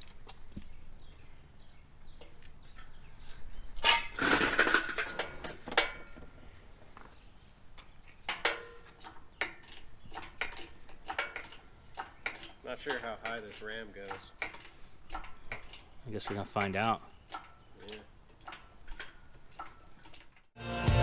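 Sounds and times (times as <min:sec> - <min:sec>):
metal ringing: 0:03.8 - 0:06.2, 0:08.3 - 0:19.9
metal clanking and rattling: 0:03.8 - 0:06.4, 0:08.3 - 0:20.5.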